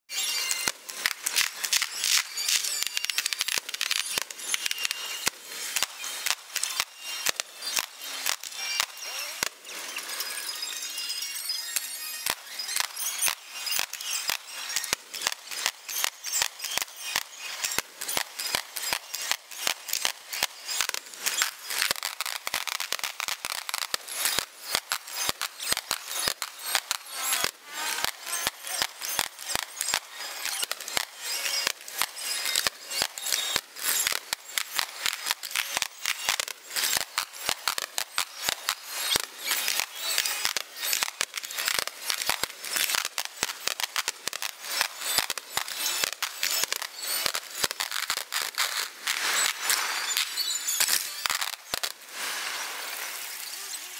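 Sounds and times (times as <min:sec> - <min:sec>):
fireworks popping and crackling: 0:00.1 - 0:53.9.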